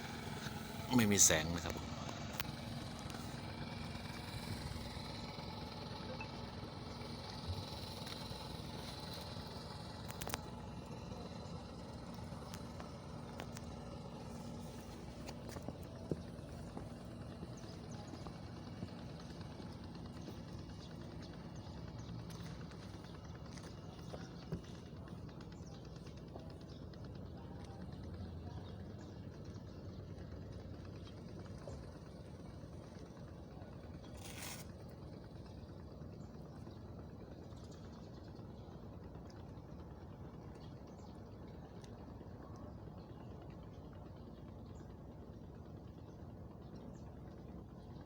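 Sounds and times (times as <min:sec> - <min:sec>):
distant engine hum: 0:00.0 - 0:48.0
small scattered clicks: 0:09.9 - 0:11.0.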